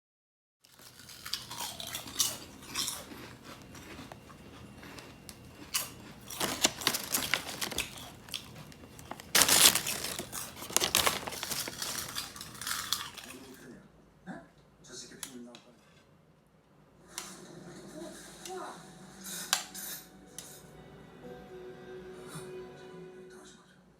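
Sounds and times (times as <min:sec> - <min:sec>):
crinkling rustling: 0:03.6 - 0:13.6.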